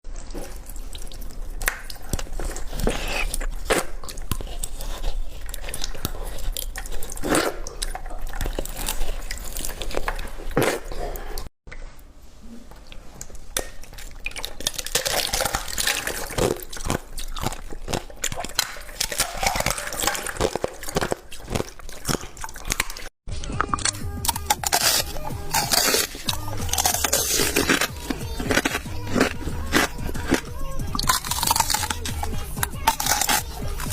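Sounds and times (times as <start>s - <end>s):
wet drippy sounds: 0.1s - 10.5s
ice crunching in mouth: 0.1s - 11.5s, 13.6s - 33.9s.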